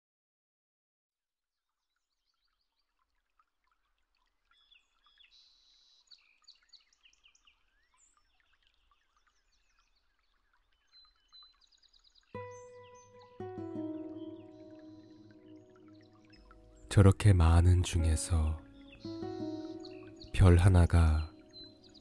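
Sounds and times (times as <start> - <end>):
birds chirping and trilling: 4.5 - 22.0.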